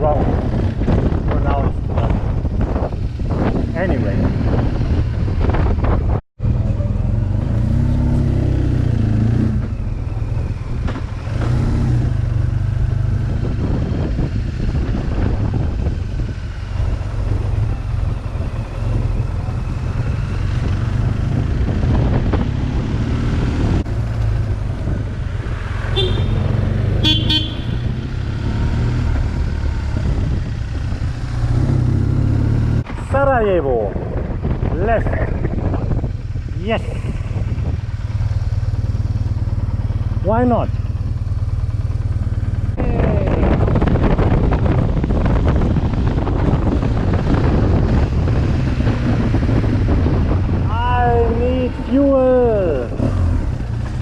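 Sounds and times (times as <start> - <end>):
motorcycle engine running: 0.0 - 32.9, 34.1 - 54.0
wind rush: 0.0 - 54.0
vehicle horn beeps: 26.0 - 27.8.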